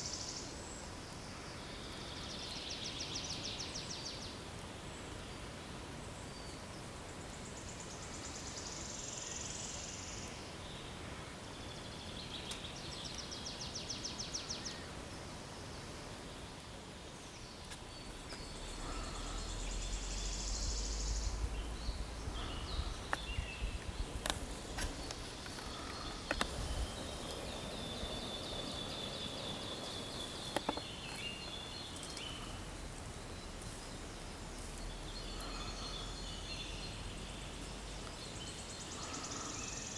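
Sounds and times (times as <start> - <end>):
songbirds trilling: 0.0 - 39.9
low rumble: 18.0 - 25.2.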